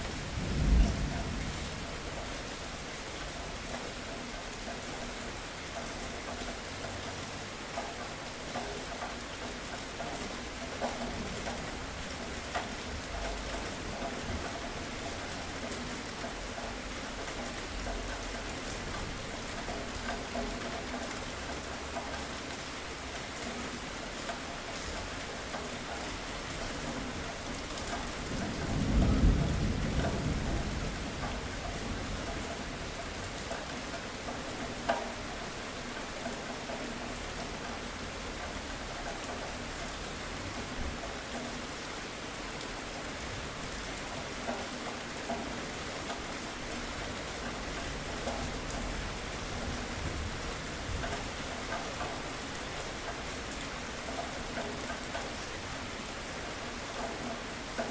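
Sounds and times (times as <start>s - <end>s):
low rumble of thunder: 0.0s - 3.6s, 28.0s - 33.4s, 46.6s - 51.6s
steady rain falling: 0.0s - 57.9s.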